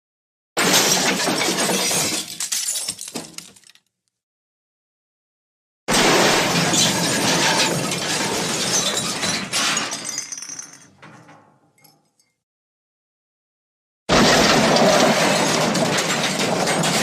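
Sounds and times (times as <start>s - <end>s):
glass breaking crash: 0.6s - 3.8s, 5.9s - 10.9s, 14.1s - 17.0s.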